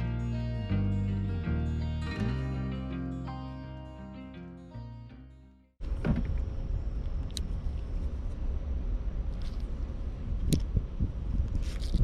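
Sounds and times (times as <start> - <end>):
acoustic guitar music: 0.0 - 5.7
steady low rumble: 5.8 - 12.0.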